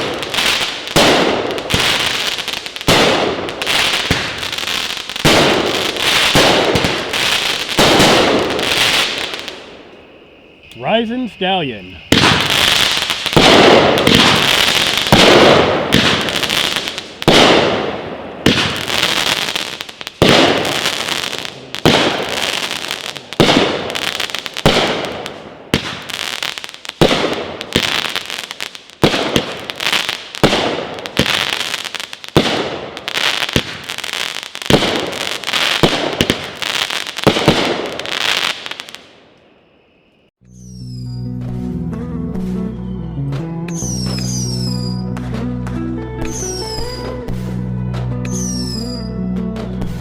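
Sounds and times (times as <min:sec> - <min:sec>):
firework shots firing: 0:00.0 - 0:09.8, 0:10.7 - 0:39.2
crackling firework shells: 0:00.0 - 0:41.0.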